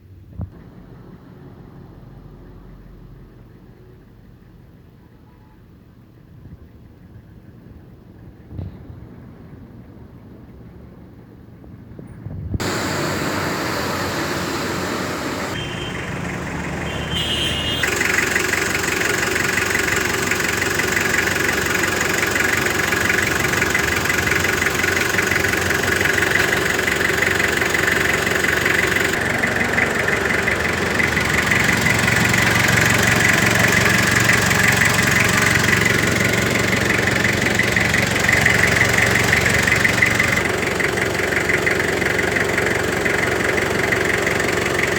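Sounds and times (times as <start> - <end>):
diesel engine idling: 12.6 - 44.9.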